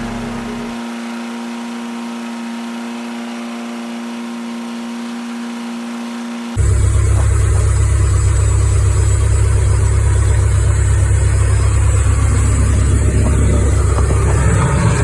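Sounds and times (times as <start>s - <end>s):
light aircraft engine drone: 6.5s - 15.0s.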